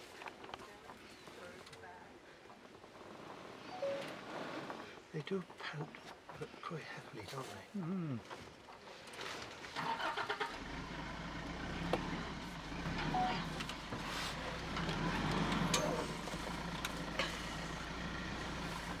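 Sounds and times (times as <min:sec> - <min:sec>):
vehicle engine starting and idling: 0:09.2 - 0:19.0.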